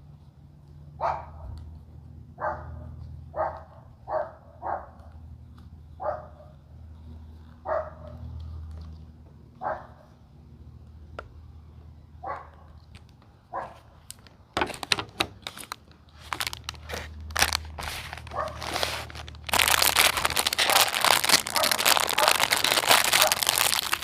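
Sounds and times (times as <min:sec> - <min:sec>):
plastic packaging crinkling: 0:14.0 - 0:24.0.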